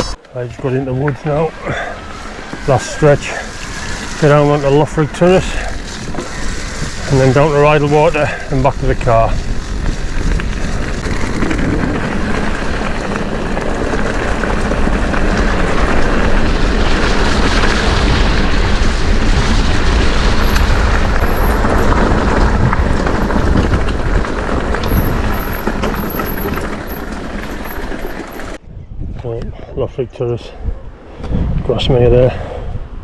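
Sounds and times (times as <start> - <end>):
bike rattling: 0.0 - 28.6
bike tyre rumble: 0.0 - 28.6
wind buffeting microphone: 0.0 - 33.0.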